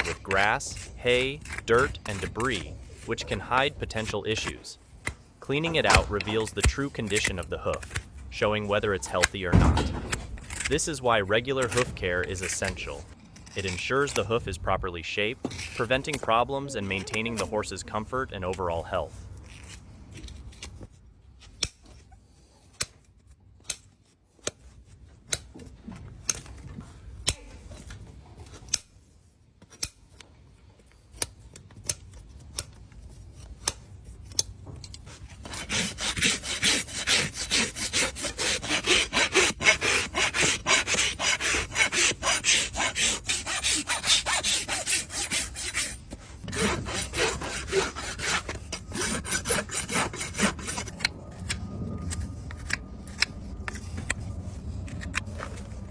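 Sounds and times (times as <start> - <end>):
hoof rasp scraping: 0.0 - 4.7, 5.4 - 14.5, 15.1 - 17.8, 35.0 - 55.9.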